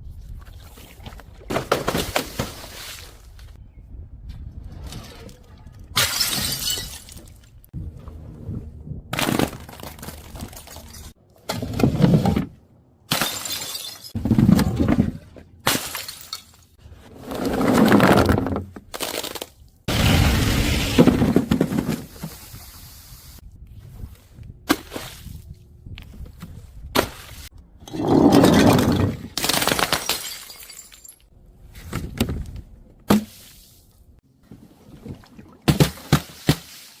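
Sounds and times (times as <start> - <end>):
glass bottles shattering: 6.0 - 7.4, 13.1 - 14.2, 15.7 - 16.6, 28.3 - 31.3.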